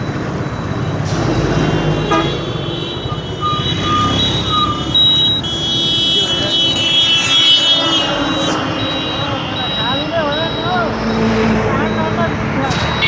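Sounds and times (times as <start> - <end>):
vehicle horn tooting: 2.0 - 10.9
steady high horn-like tones: 2.0 - 13.0.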